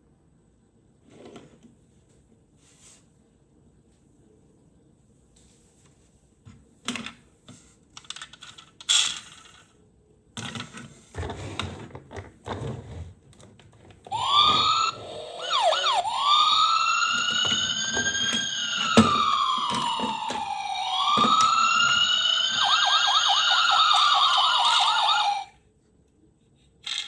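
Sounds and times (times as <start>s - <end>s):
toy police siren wailing: 14.1s - 25.5s.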